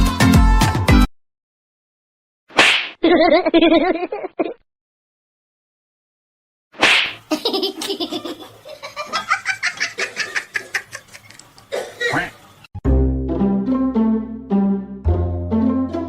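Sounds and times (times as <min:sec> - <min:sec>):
person laughing hard: 0:03.0 - 0:04.6, 0:07.3 - 0:12.3
music with plucked bass: 0:12.8 - 0:16.0.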